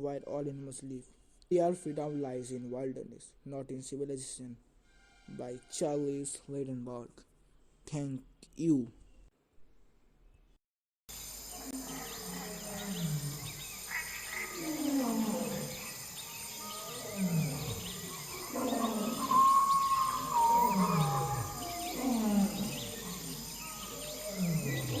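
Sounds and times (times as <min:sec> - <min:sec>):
low falling animal calls: 0:11.5 - 0:25.0
small chirps: 0:13.8 - 0:25.0
long whistle-like call: 0:19.0 - 0:22.0.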